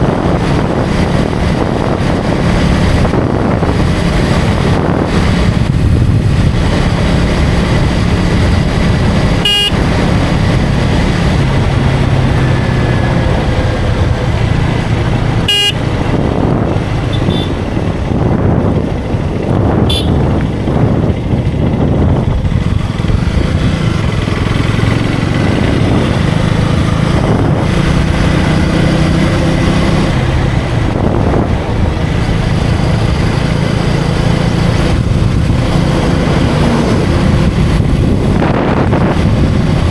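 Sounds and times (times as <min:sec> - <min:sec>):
motorcycle engine running: 0:00.0 - 0:39.9
wind rushing over microphone: 0:00.0 - 0:39.9
horn beeps: 0:09.4 - 0:10.0, 0:15.4 - 0:16.0, 0:17.1 - 0:17.7, 0:19.9 - 0:20.3.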